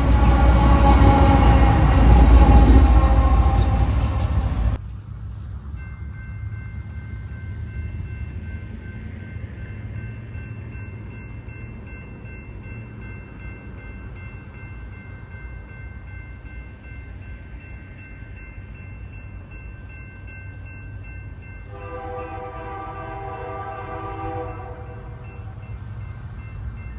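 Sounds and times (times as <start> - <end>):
freight train rumbling past: 0.0 - 26.9
locomotive air horn chord: 21.7 - 25.6.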